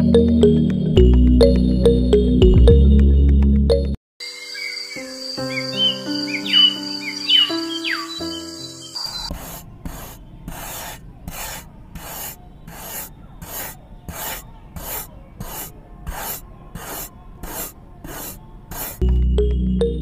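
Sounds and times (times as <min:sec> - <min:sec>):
chaff cutter chopping grass: 0:09.3 - 0:19.0.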